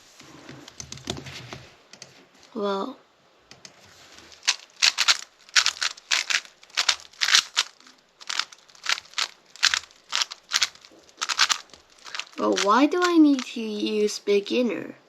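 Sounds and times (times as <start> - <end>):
plastic puzzle cube clacking: 3.5 - 13.6.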